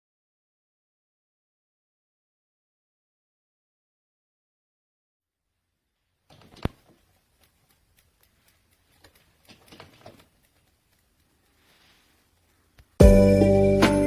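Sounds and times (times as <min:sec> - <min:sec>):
light clicks and knocks: 0:06.3 - 0:13.0.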